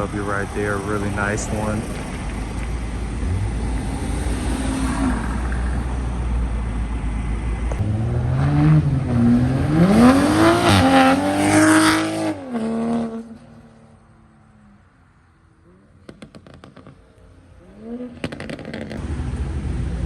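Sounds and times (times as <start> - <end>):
car engine accelerating hard: 0.0 - 13.9.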